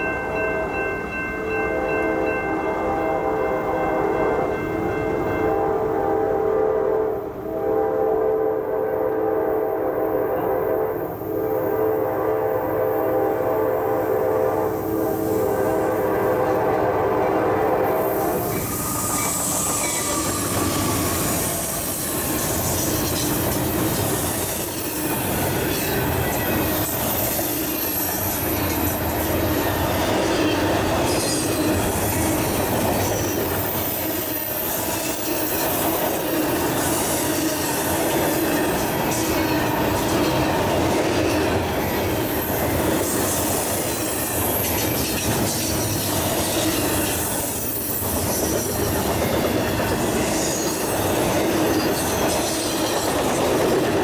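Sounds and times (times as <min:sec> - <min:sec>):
locomotive horn blast: 0:05.4 - 0:22.0
train cars rumbling: 0:08.9 - 0:54.0
faint wheel squeal: 0:18.1 - 0:22.1.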